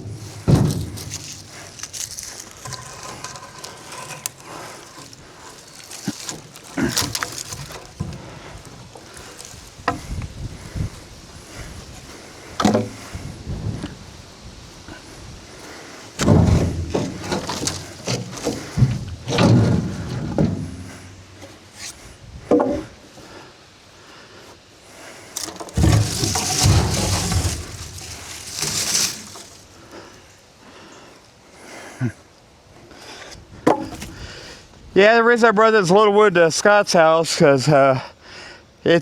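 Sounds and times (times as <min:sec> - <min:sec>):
logs knocking and thudding: 0:00.0 - 0:14.0, 0:16.2 - 0:21.6, 0:22.5 - 0:22.9, 0:25.4 - 0:29.8, 0:33.5 - 0:34.2
rustling: 0:00.0 - 0:22.1, 0:25.1 - 0:30.2.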